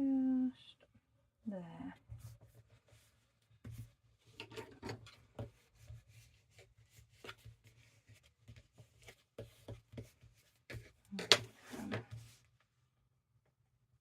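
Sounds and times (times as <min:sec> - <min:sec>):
paper rustling and rubbing: 0:05.1 - 0:12.4.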